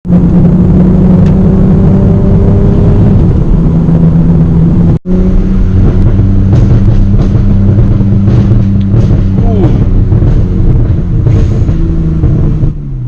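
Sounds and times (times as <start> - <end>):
loud car exhaust: 0.0 - 13.0.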